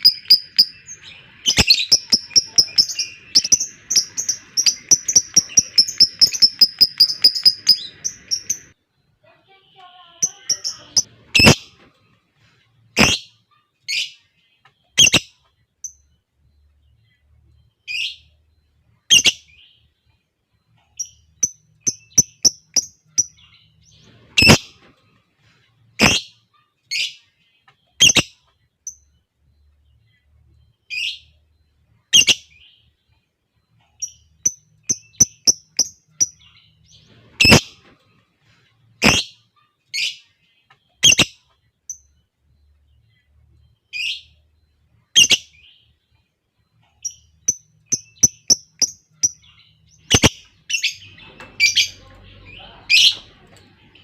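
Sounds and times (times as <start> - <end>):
lovebirds shrill calls: 0.0 - 8.8, 10.2 - 11.8, 13.0 - 13.3, 24.0 - 24.8, 26.0 - 26.3, 34.0 - 37.9, 39.0 - 39.4, 47.0 - 53.4.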